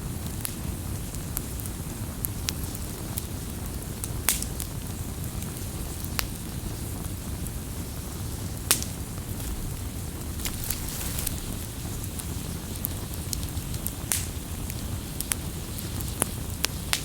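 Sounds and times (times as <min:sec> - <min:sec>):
campfire crackling and popping: 0:07.3 - 0:17.0.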